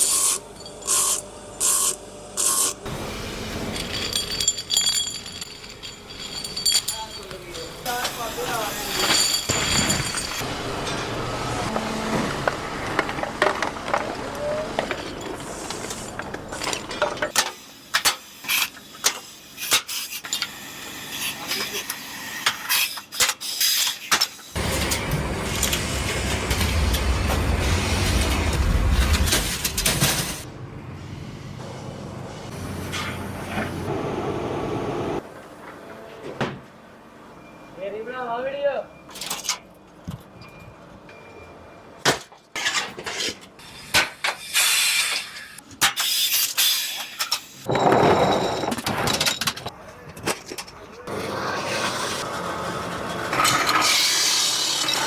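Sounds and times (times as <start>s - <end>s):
tools clicking and clanking: 3.5s - 8.3s
metal parts knocking: 3.6s - 7.8s.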